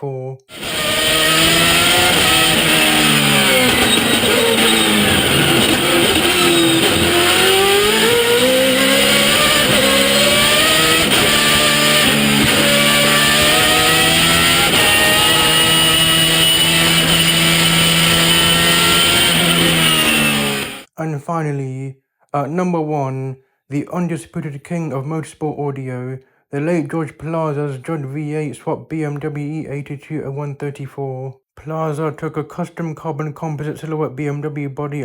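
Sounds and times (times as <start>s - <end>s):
race car engine at high revs: 0.5s - 20.9s
straight-cut gear whine: 0.5s - 20.9s.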